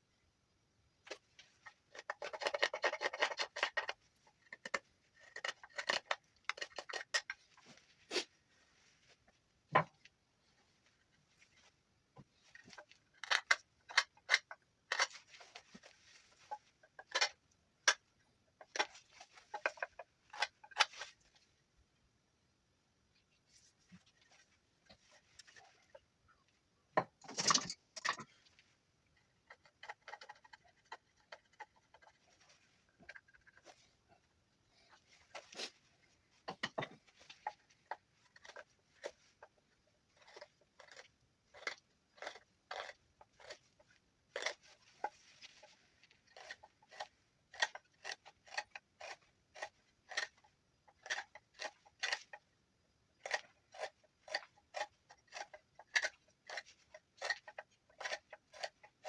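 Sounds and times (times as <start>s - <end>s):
knife whittling wood: 46.3s - 52.4s.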